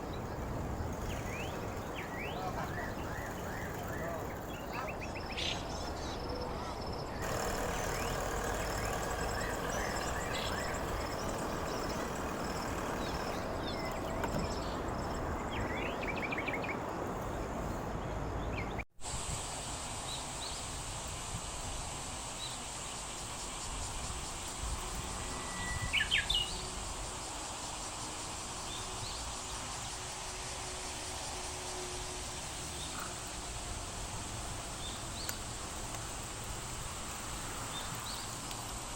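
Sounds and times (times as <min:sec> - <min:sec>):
bird chirps: 0:00.0 - 0:17.4
high insect call: 0:00.0 - 0:38.9.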